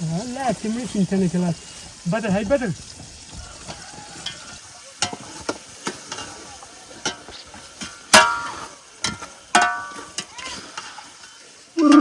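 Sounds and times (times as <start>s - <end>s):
metal utensils knocking and scraping: 3.6s - 6.4s, 7.0s - 11.0s.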